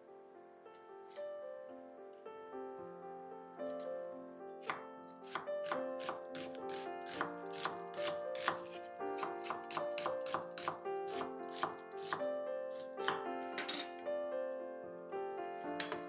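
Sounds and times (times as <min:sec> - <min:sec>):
soft piano music: 0:00.0 - 0:16.0
knife chopping on cutting board: 0:04.6 - 0:12.2, 0:12.8 - 0:13.9, 0:15.8 - 0:16.0.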